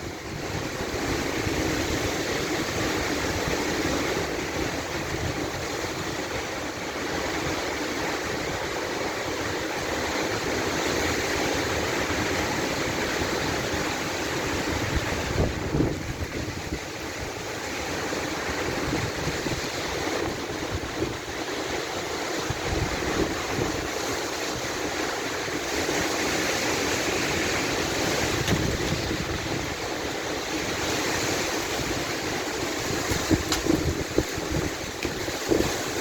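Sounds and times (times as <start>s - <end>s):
strong wind blowing: 0.0s - 36.0s
wind buffeting microphone: 7.2s - 36.0s.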